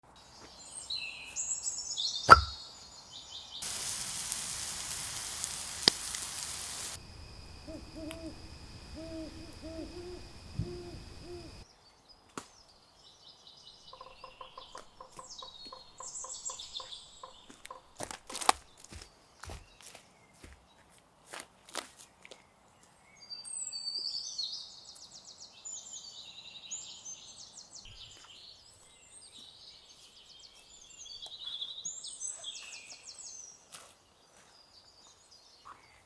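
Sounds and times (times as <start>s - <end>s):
birdsong: 2.2s - 11.6s
steady hiss: 3.6s - 11.6s
low repeated hoots: 3.7s - 11.6s.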